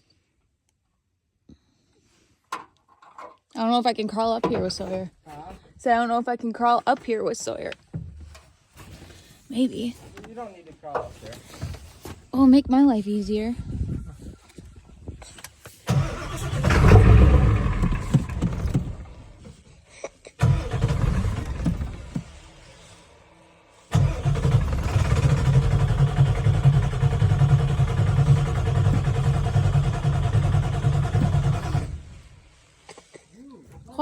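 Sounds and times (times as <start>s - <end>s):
diesel engine cold starting: 15.8s - 19.7s, 20.4s - 32.8s.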